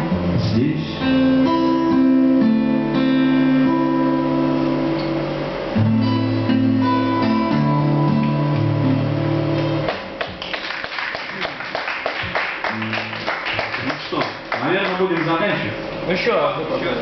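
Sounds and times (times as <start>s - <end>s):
acoustic guitars strumming: 0.0s - 10.4s, 11.2s - 16.0s
people clapping: 9.9s - 15.6s.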